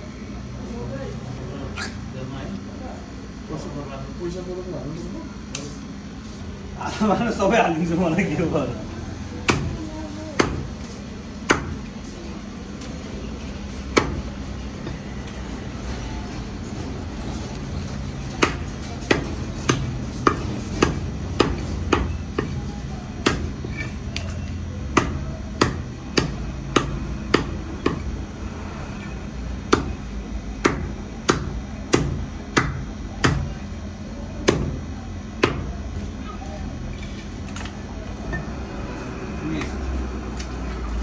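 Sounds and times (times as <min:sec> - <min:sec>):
knife chopping fish on block: 0:09.5 - 0:09.8, 0:10.4 - 0:10.8, 0:11.5 - 0:11.8, 0:14.0 - 0:14.3, 0:18.4 - 0:28.1, 0:29.7 - 0:30.0, 0:30.6 - 0:33.6, 0:34.5 - 0:34.8.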